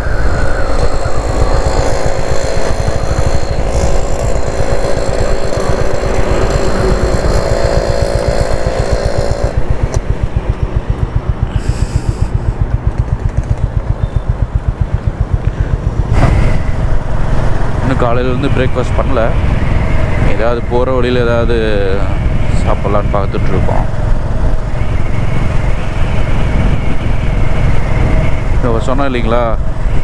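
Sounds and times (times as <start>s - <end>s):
motorcycle engine thudding: 1.1s - 17.9s.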